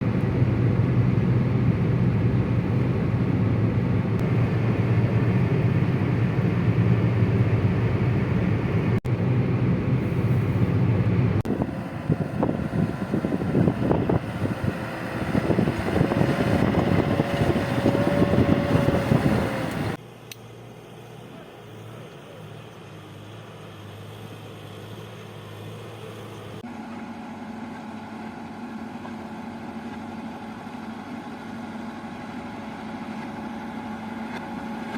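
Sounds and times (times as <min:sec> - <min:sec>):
heavy machine engine drone: 0:00.0 - 0:34.9.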